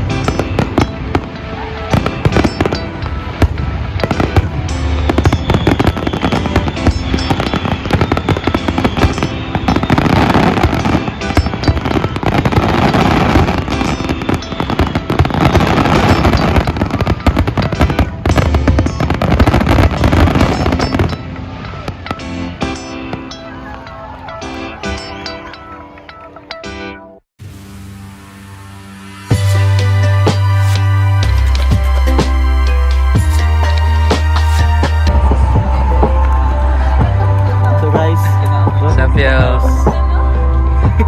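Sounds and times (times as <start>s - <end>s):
fireworks bangs and crackling: 0.0s - 23.3s
music: 0.0s - 41.0s.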